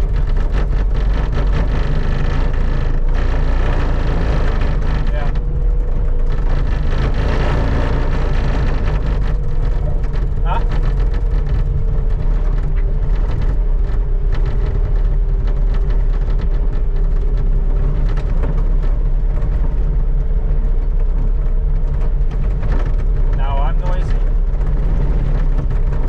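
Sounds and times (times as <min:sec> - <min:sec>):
skid steer engine running: 0:00.0 - 0:26.0.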